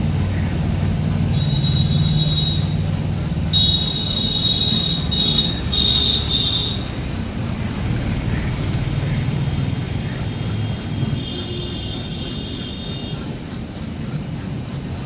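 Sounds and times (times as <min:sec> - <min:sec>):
train rumbling: 0:00.0 - 0:15.0
train wheels squealing on rails: 0:01.2 - 0:07.2.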